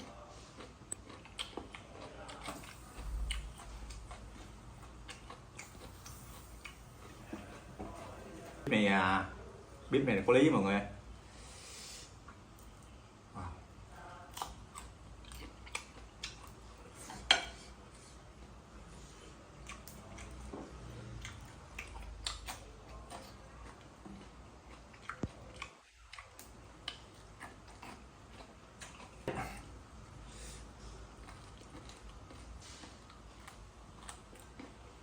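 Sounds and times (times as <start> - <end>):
person chewing with crunches: 0.0 - 8.7, 14.1 - 17.4, 19.6 - 29.8, 30.4 - 35.0.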